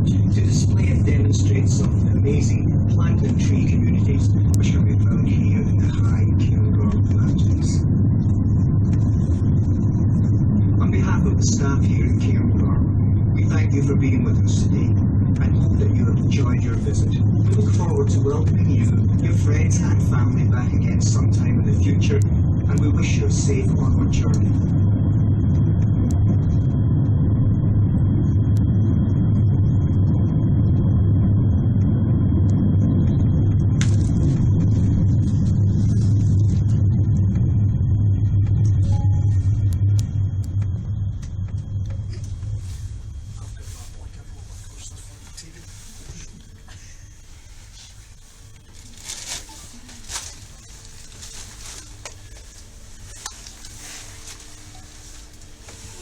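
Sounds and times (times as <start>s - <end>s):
railway car low rumble: 0.0s - 56.0s
faint electrical hum: 38.6s - 56.0s
faint high tone: 38.8s - 39.8s
short rustling noises: 47.8s - 56.0s.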